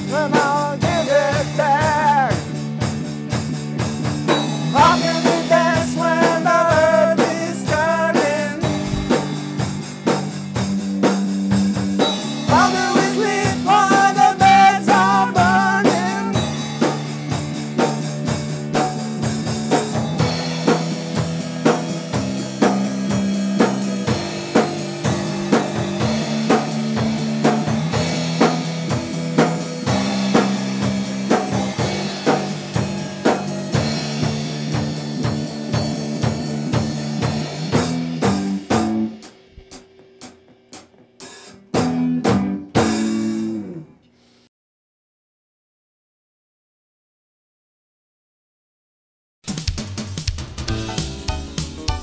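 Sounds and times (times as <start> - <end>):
rock band playing: 0.0 - 43.8, 49.5 - 52.0
drum hits: 3.4 - 10.8, 23.6 - 43.2, 49.5 - 52.0.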